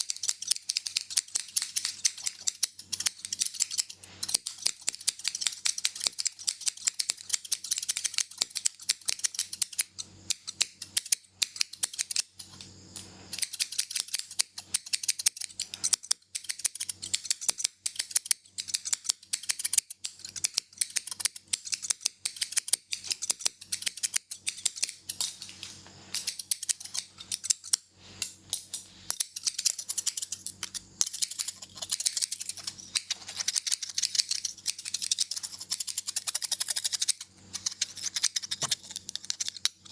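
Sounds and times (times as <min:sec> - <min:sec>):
scissors snipping: 0:00.0 - 0:12.7, 0:28.5 - 0:39.9.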